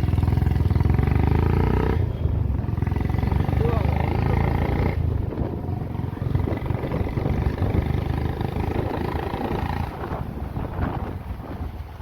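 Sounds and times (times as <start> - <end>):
motorcycle engine rumbling: 0.0 - 12.0
wind on microphone: 4.8 - 12.0.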